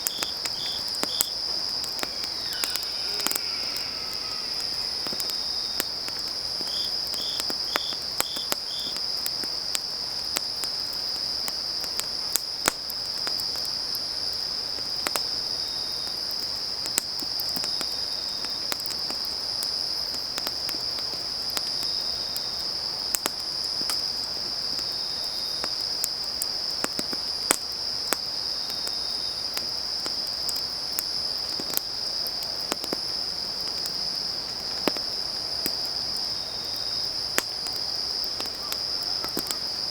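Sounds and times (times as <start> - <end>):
wood fire popping and crackling: 0.0 - 10.4, 37.1 - 39.9
crickets trilling: 0.0 - 11.8, 21.6 - 39.9
short chirps: 1.5 - 6.0.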